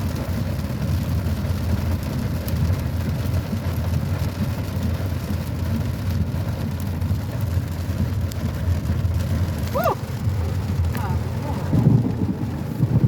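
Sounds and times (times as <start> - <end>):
steady rain: 0.0 - 13.0
low thunder rumble: 5.7 - 13.0.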